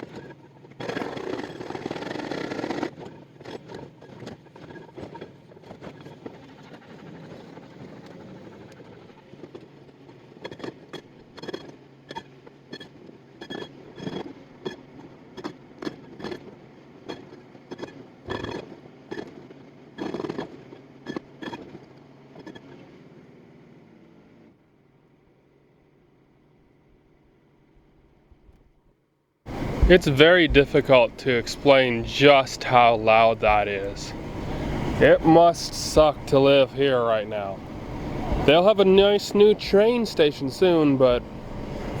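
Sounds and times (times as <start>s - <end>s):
sharp knocks: 29.5s - 40.1s
excavator engine running: 29.5s - 42.0s
hydraulic breaker hammering rock: 29.5s - 42.0s.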